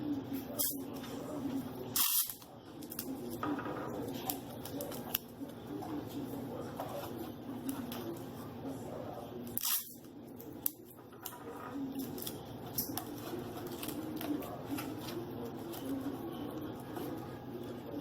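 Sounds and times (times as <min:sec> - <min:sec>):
paper rustling and crinkling: 0:11.4 - 0:17.2.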